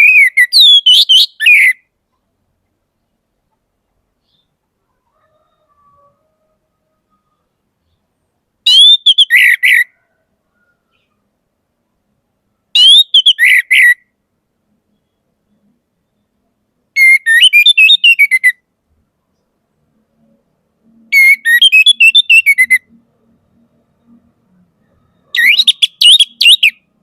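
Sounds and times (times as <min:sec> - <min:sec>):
thrush singing whistled notes: 0:00.0 - 0:01.9, 0:08.6 - 0:11.1, 0:12.8 - 0:14.1, 0:17.0 - 0:18.6, 0:21.1 - 0:23.0, 0:24.8 - 0:27.0.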